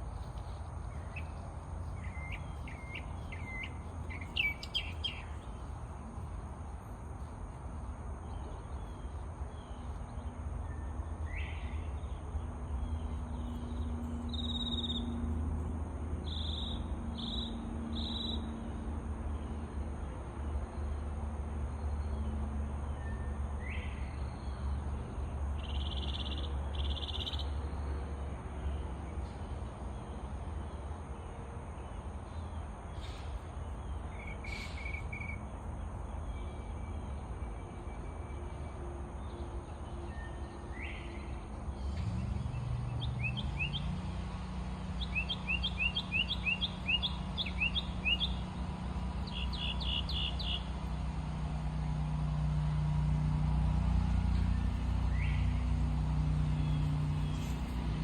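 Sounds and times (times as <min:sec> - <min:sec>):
low steady hum: 0:00.0 - 0:17.0
songbirds singing: 0:00.0 - 0:18.6, 0:19.4 - 0:52.8, 0:53.4 - 0:58.0.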